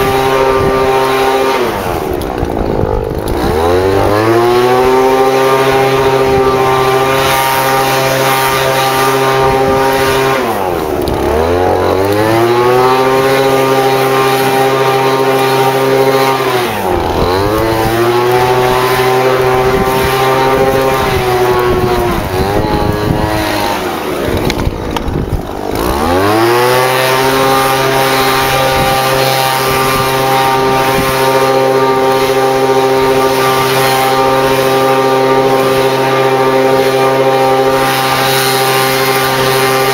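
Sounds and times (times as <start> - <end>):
small gas engine revving: 0.0 - 39.9.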